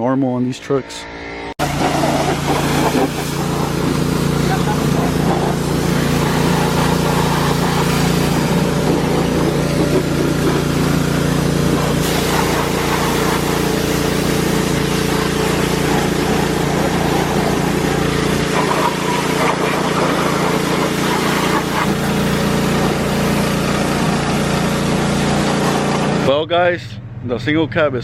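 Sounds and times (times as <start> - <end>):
engine running with low hum: 1.6 - 28.0.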